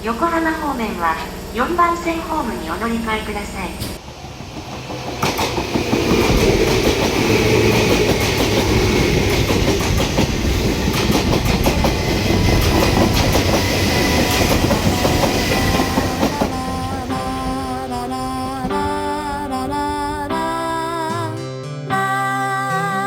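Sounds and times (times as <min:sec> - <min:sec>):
faint steady whine: 0:00.0 - 0:04.2
train wheels clattering on rails: 0:00.1 - 0:18.0.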